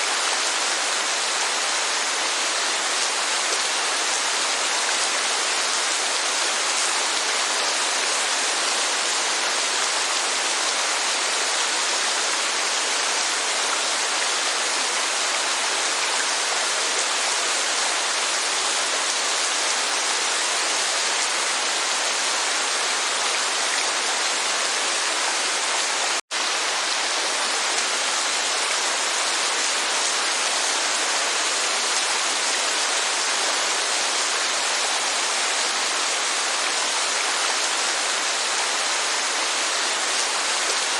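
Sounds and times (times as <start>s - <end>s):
rain: 0.0s - 40.9s
waterfall: 0.0s - 40.9s.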